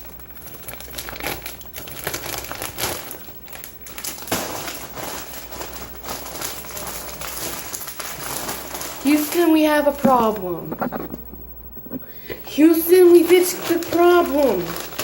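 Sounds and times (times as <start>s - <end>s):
chip bag crinkling: 0.3s - 11.4s, 12.7s - 15.0s.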